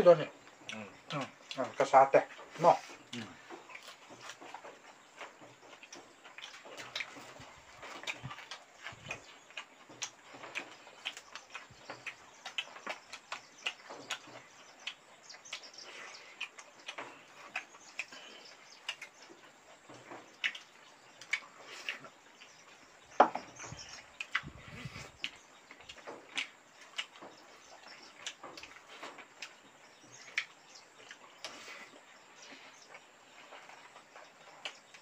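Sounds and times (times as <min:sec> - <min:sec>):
wet chewing: 0:00.1 - 0:35.0.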